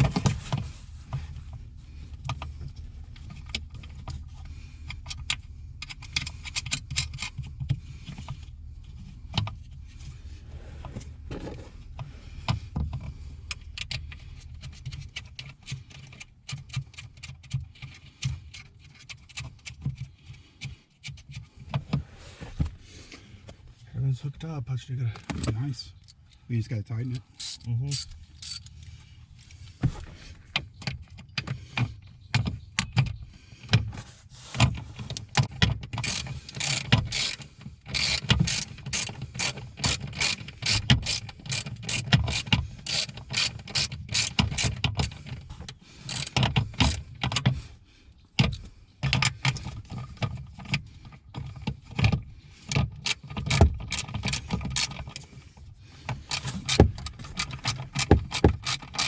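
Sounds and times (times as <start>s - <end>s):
ratchet wrench clicking: 27.2s - 28.8s, 36.0s - 45.3s, 46.0s - 47.1s, 53.0s - 55.2s, 56.3s - 59.0s.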